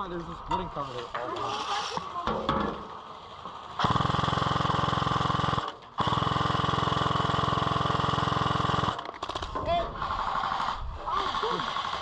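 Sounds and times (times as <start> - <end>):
airsoft machine gun firing: 3.8 - 12.0.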